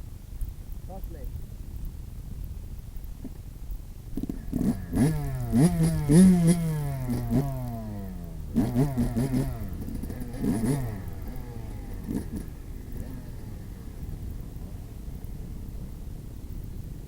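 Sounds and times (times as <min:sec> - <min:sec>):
motocross bike engine revving: 0:04.1 - 0:15.8.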